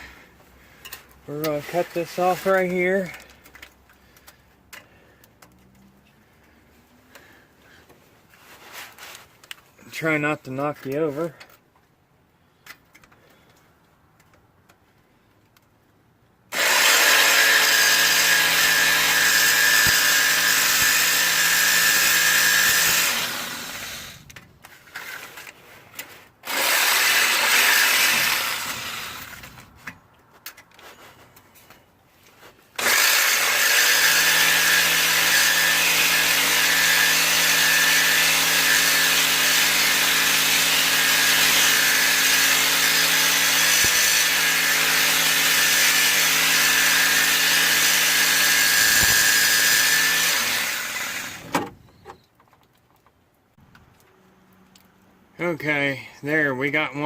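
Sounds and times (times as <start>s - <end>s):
power tool cutting steel pipe: 1.3s - 3.3s, 16.5s - 24.3s, 24.9s - 29.6s, 32.8s - 51.6s.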